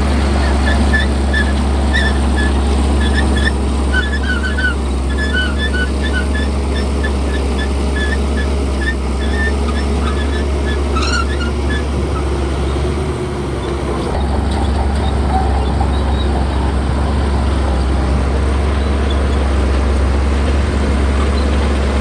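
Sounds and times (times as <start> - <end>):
bulldozer diesel engine rumbling: 0.0 - 22.0
brief squeak: 0.4 - 11.9.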